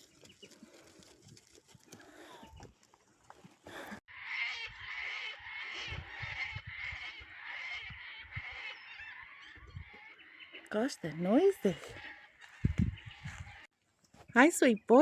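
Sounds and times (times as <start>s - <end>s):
birds screeching and warbling: 3.7s - 13.7s.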